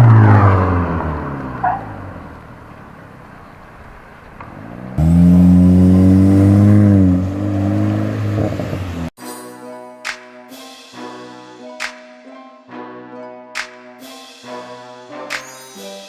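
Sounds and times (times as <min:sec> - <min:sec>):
car exhaust note accelerating: 0:00.0 - 0:09.1.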